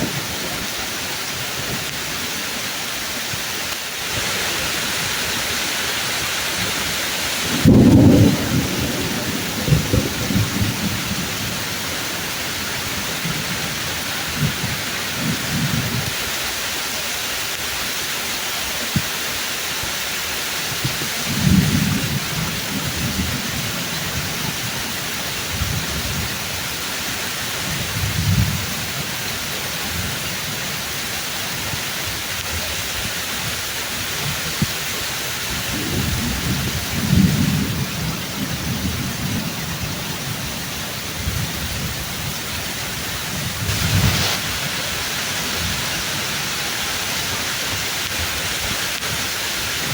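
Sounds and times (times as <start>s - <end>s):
pouring rain: 0.0s - 49.9s
thunder rumbling: 4.1s - 16.2s, 20.8s - 33.3s, 34.0s - 49.9s.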